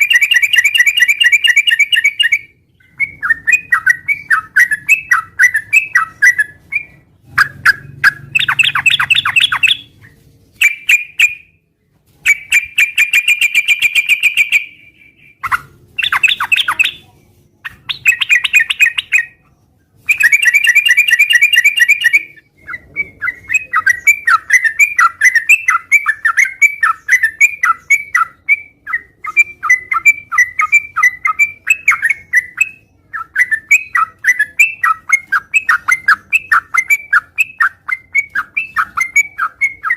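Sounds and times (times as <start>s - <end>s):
bulbul singing: 0.0s - 11.6s, 12.2s - 39.9s.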